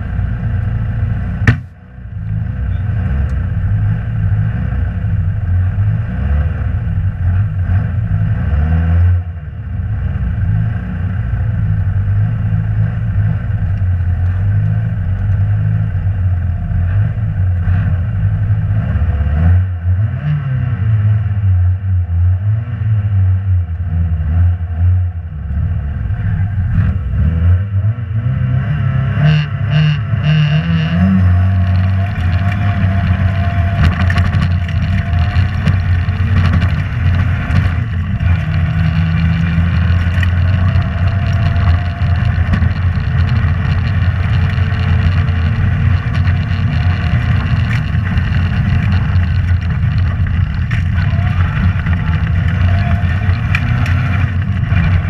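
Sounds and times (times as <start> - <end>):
rally car engine revving: 0.0 - 55.0.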